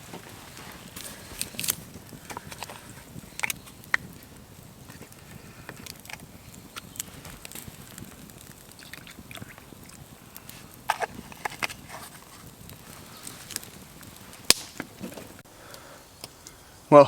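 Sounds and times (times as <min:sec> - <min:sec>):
low outdoor background: 0:00.0 - 0:17.0
sharp crack: 0:12.7 - 0:15.4.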